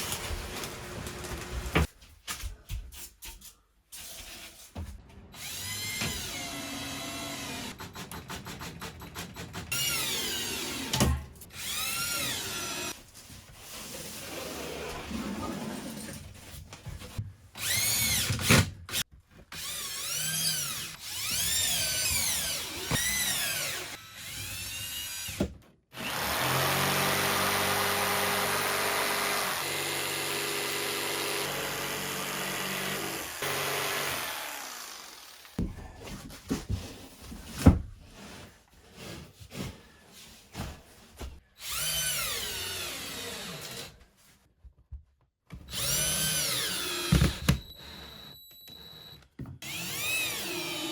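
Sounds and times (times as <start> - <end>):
power drill running: 5.4 - 7.7, 17.6 - 18.3, 26.0 - 35.6, 45.7 - 50.9.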